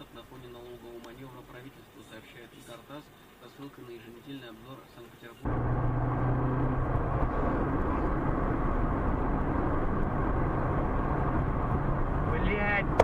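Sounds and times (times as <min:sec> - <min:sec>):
car road noise: 0:05.4 - 0:13.0
low engine hum: 0:05.4 - 0:13.0.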